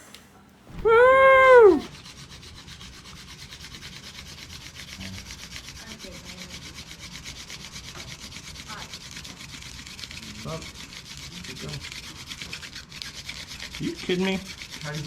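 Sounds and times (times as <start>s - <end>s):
person cheering: 0.8s - 1.9s.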